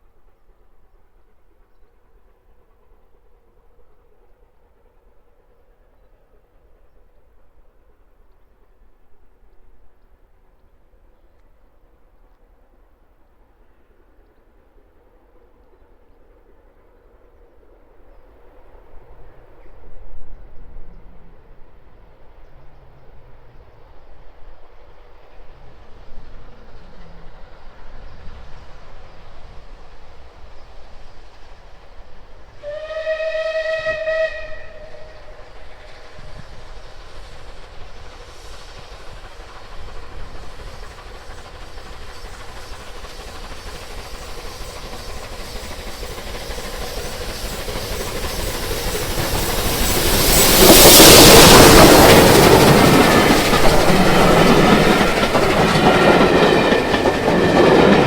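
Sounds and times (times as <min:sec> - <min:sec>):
train passing: 0:00.0 - 0:58.0
steam locomotive whistle: 0:32.6 - 0:36.6.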